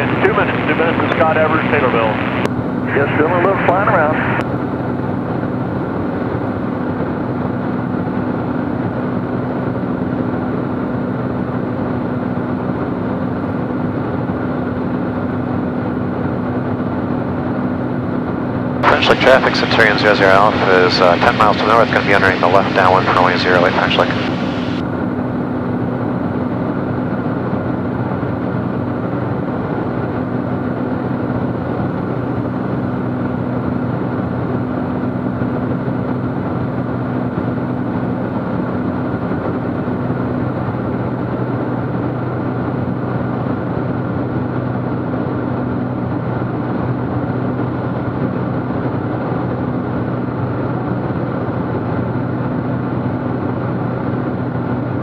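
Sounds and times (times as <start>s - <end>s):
airplane engine and propeller droning: 0.0s - 55.0s.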